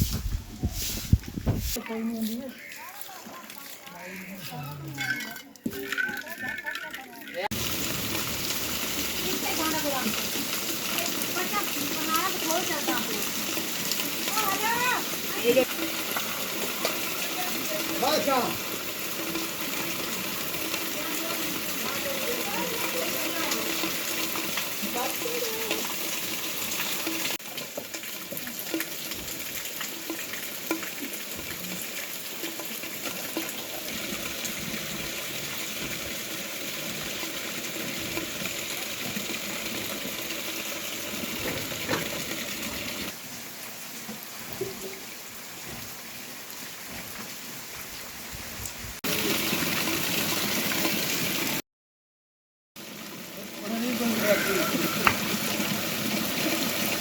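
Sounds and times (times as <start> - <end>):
heavy rain falling: 7.5 - 48.2, 52.8 - 57.0.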